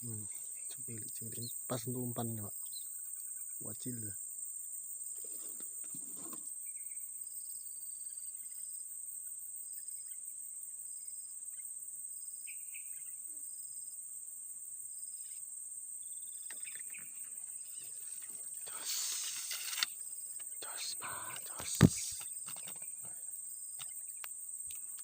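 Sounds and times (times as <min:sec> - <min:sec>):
insect chirps: 0:00.0 - 0:25.0
high-pitched insect chirring: 0:16.0 - 0:25.0
burst of noise: 0:18.7 - 0:19.8, 0:21.5 - 0:22.2.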